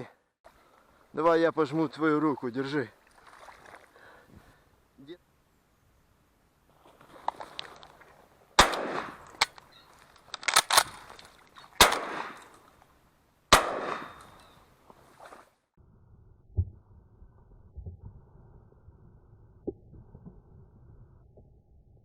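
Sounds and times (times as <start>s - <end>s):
shotgun blasts echoing: 8.6s - 9.4s, 11.8s - 12.5s, 13.5s - 14.4s.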